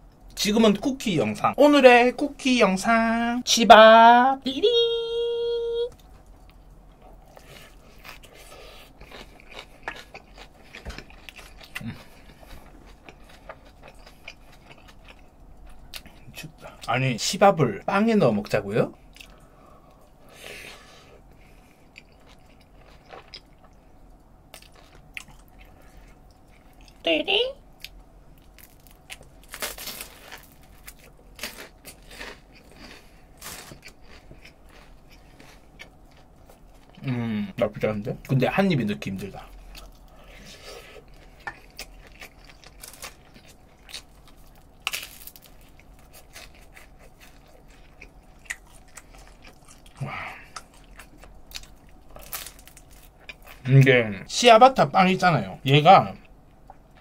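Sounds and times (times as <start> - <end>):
person chewing: 5.9 - 16.8, 19.0 - 20.0, 20.8 - 27.0, 27.7 - 37.3, 39.4 - 53.7.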